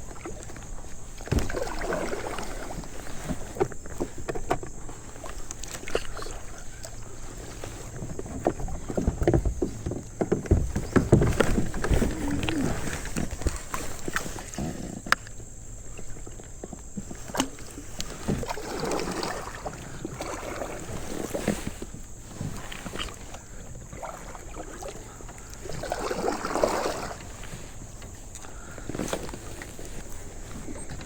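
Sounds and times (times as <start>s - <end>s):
paddle splashing water: 0.0s - 31.0s.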